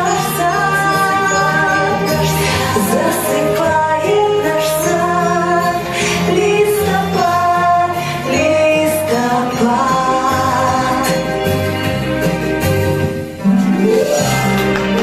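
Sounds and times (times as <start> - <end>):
high voice singing: 0.0 - 11.6
instrumental accompaniment with bass: 0.0 - 15.0.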